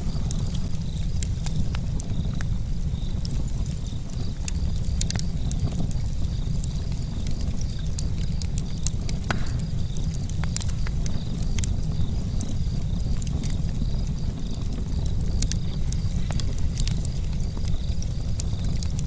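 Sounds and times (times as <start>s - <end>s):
campfire crackling and popping: 0.0s - 19.0s
steady low rumble: 4.2s - 18.9s.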